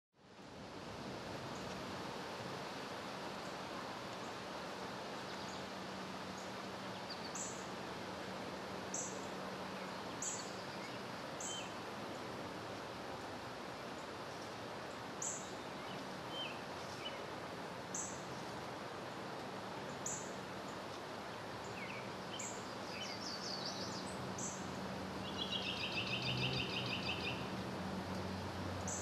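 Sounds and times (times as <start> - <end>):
background hiss: 0.2 - 29.0
birds chirping: 19.8 - 27.5.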